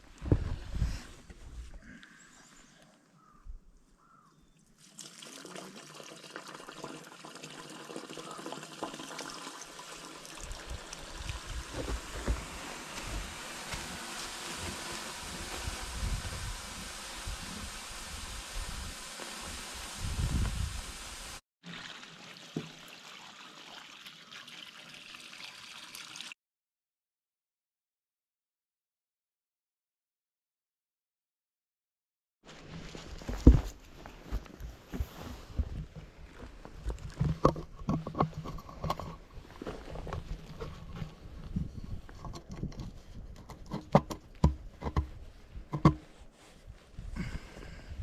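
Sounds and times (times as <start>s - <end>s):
water pouring down a pipe: 4.8s - 26.4s.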